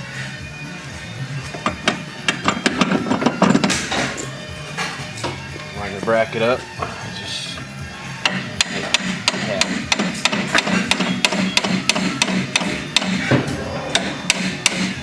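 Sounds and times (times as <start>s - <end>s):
hammer tapping on metal: 8.2s - 13.2s, 13.9s - 15.0s.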